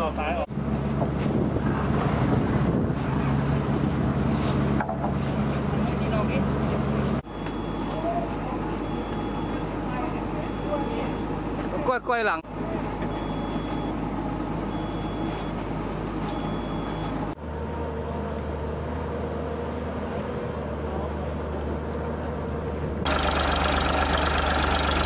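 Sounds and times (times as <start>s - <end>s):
short high beeps: 7.3s - 9.7s, 13.1s - 14.0s
motor engine running: 23.0s - 25.0s.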